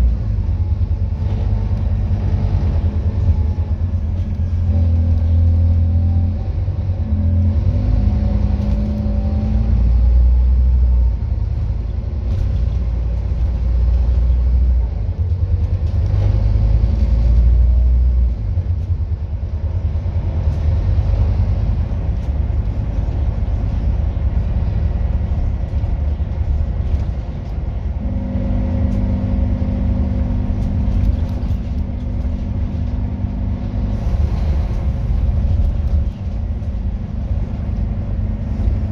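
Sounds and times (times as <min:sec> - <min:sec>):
bus diesel engine rumbling: 0:00.0 - 0:38.9
steady hum: 0:21.9 - 0:38.9.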